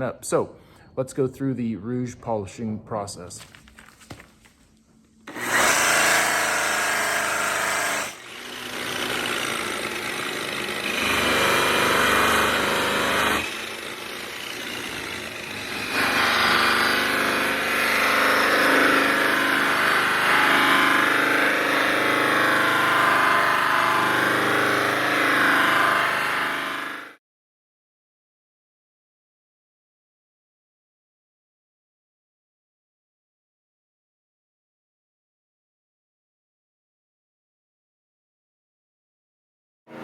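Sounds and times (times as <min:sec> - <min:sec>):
electric buffer motor running: 0:05.3 - 0:27.2.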